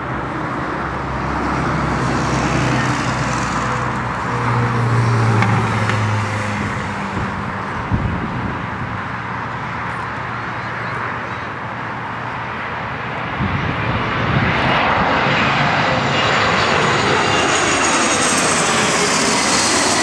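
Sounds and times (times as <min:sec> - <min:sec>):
vehicle passing: 0:00.9 - 0:09.3.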